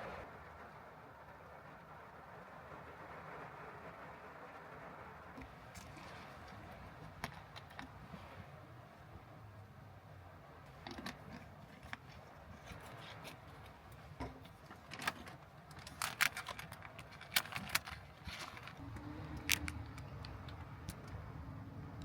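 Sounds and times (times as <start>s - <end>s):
low background rumble: 0.0s - 22.0s
small objects clicking and clattering: 10.8s - 21.1s.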